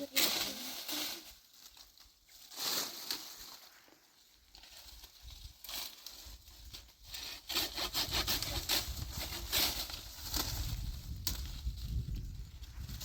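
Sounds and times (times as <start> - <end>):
hand saw cutting wood: 7.1 - 10.5.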